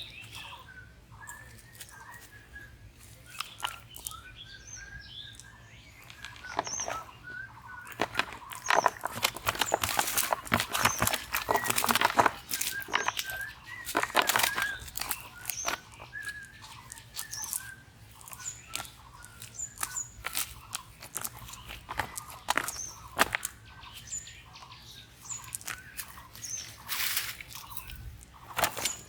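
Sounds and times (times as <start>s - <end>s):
birds chirping: 0.0s - 29.0s
crackling clicks: 7.8s - 23.6s, 25.4s - 29.0s.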